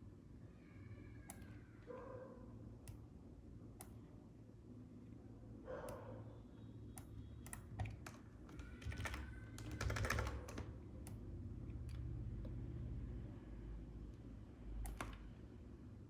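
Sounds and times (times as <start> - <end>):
computer keyboard keys clicking: 7.0 - 11.2, 14.8 - 15.3.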